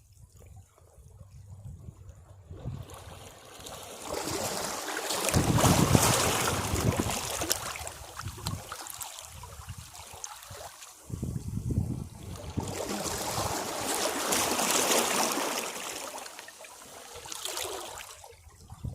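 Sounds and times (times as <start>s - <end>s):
sea waves breaking on rocks: 2.6s - 11.2s, 11.8s - 18.2s.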